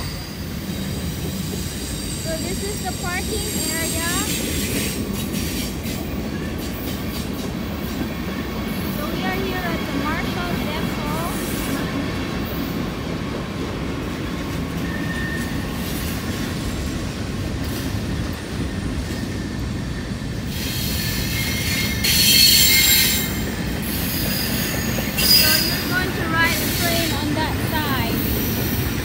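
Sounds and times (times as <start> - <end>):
train wheels rumbling on rails: 0.0 - 29.0
high-pitched wheel squealing: 20.5 - 27.3.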